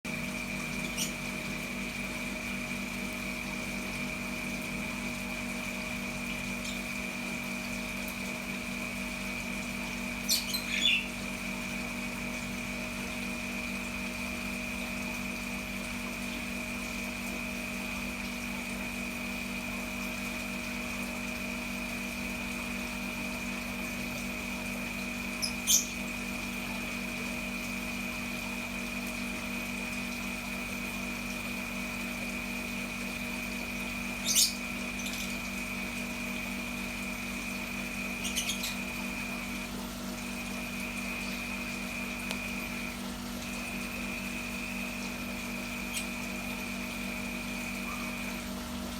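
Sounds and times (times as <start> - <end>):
machine hum: 0.1 - 48.9
parrot calls: 10.2 - 11.1, 25.4 - 26.0, 34.2 - 35.4, 38.2 - 38.9.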